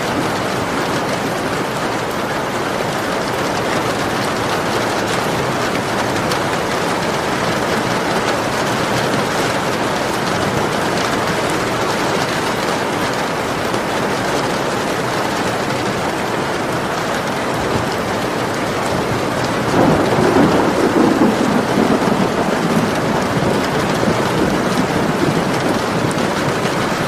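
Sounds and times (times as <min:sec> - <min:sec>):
steady rain falling: 0:00.0 - 0:27.0
thunder rumbling: 0:17.2 - 0:27.0.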